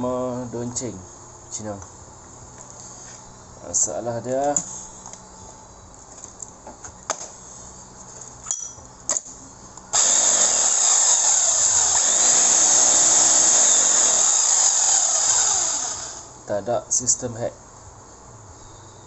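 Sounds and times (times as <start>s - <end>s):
demolition hammer motor whine: 9.9s - 16.3s.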